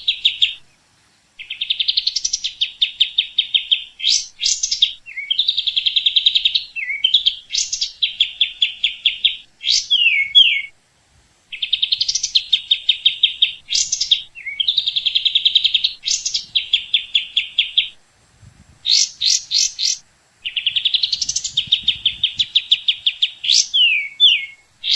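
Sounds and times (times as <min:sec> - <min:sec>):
songbird singing trills: 0:00.0 - 0:10.8, 0:11.5 - 0:18.0, 0:18.8 - 0:24.9.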